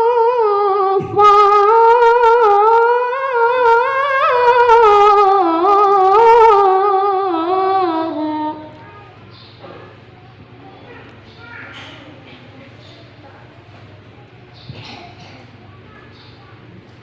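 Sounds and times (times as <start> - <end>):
person reciting melodically: 0.0 - 9.6.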